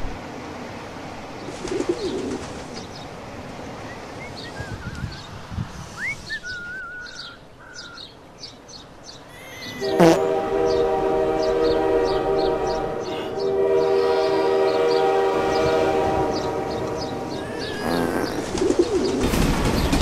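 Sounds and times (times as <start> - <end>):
steady background noise: 0.0 - 20.0
small birds chirping: 1.4 - 20.0
pigeon cooing: 17.3 - 19.2.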